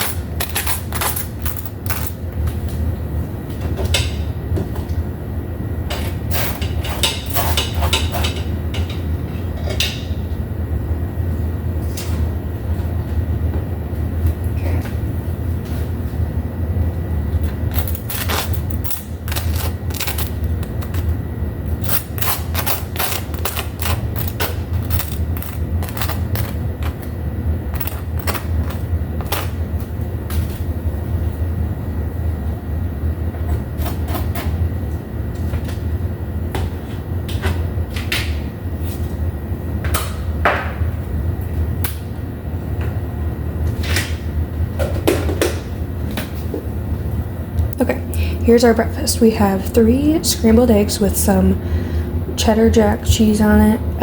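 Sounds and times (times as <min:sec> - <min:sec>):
utensils and dishes clattering: 0:00.0 - 0:02.2, 0:05.9 - 0:10.0, 0:17.7 - 0:21.2, 0:21.8 - 0:27.0
steady low hum: 0:00.0 - 0:54.0.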